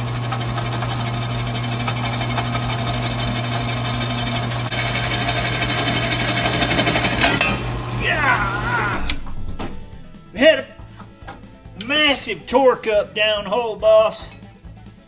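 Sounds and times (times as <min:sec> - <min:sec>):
electric drill boring into steel: 0:00.0 - 0:09.5.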